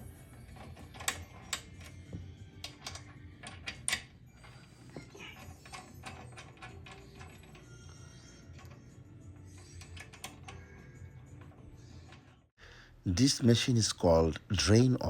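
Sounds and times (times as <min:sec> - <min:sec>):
metal parts clicking and rattling: 0:00.5 - 0:02.0, 0:02.6 - 0:12.4.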